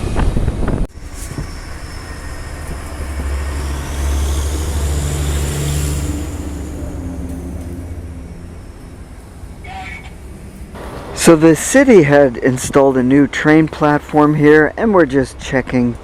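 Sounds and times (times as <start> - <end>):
wind on microphone: 0.0 - 5.5
diesel train engine droning: 0.0 - 15.5.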